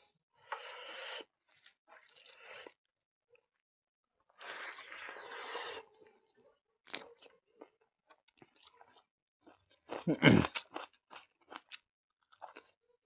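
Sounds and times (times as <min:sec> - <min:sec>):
person chewing food crunchily: 0:08.3 - 0:12.8.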